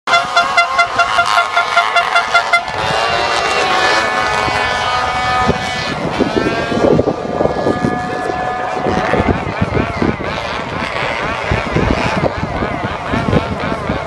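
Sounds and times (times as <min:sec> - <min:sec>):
horn tooting in short blasts: 0:00.1 - 0:04.0
held and rising horn tones: 0:00.1 - 0:13.6
engine: 0:00.1 - 0:14.0.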